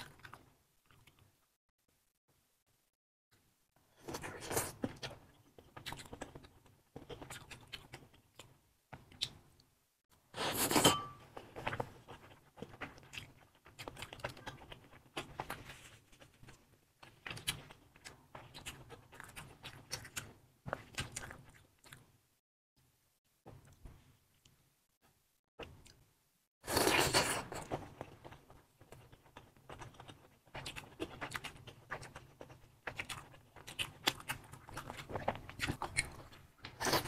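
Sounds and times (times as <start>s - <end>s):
chewing: 0.0s - 1.3s, 11.5s - 22.1s, 26.8s - 37.0s.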